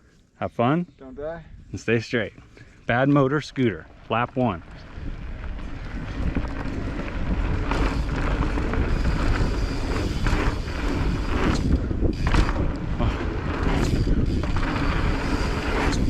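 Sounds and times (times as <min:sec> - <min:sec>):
bike rattles and tyre scrapes: 0:02.4 - 0:16.0
mountain bike rumbling on dirt: 0:03.0 - 0:16.0
wind buffeting microphone: 0:03.8 - 0:16.0.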